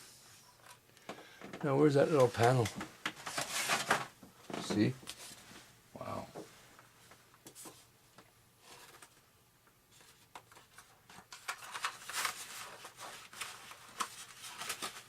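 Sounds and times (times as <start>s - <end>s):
plastic parts rustling and clicking: 0.6s - 4.9s.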